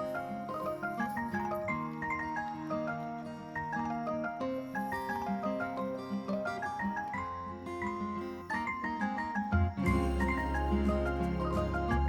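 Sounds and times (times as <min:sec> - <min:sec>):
light plucked melody with bass: 0:09.6 - 0:12.0.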